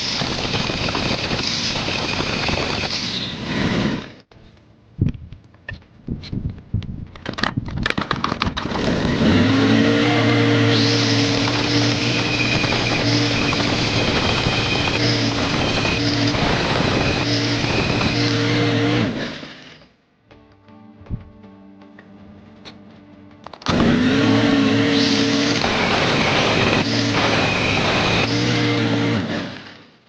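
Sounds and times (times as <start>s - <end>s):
power tool whirring and scraping: 0.0s - 4.3s, 8.6s - 20.0s, 23.7s - 30.0s.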